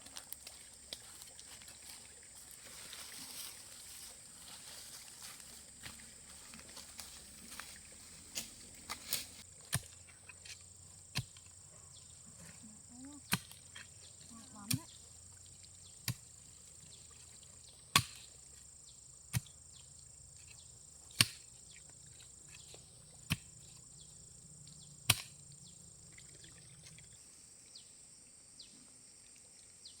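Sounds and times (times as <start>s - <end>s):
insects droning: 0.0s - 30.0s
hand tool chopping ground: 8.3s - 11.5s, 13.3s - 15.0s, 16.0s - 16.3s, 17.9s - 18.4s, 19.3s - 19.6s, 20.4s - 21.6s, 22.5s - 23.8s, 25.1s - 25.4s.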